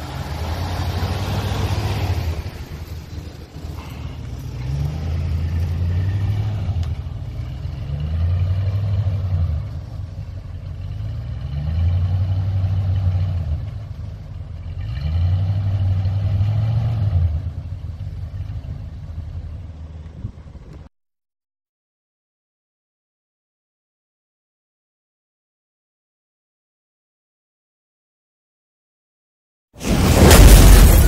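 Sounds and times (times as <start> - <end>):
car engine revving: 0.0 - 13.8.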